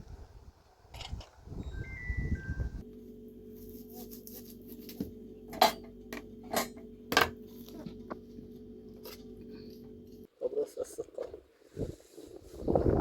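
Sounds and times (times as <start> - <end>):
steady low hum: 2.6 - 10.3.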